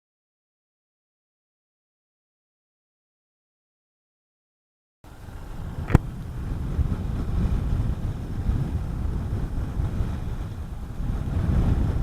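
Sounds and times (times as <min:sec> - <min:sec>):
wind rumble on helmet microphone: 0:05.1 - 0:12.0.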